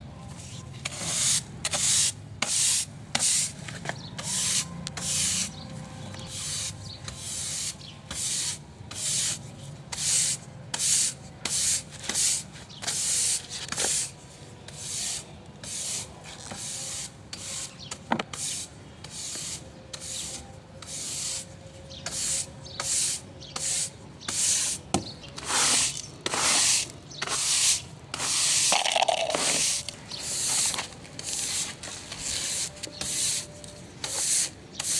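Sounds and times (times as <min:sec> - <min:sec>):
rubbing strokes of cleaning: 0:04.2 - 0:14.2, 0:25.4 - 0:34.9.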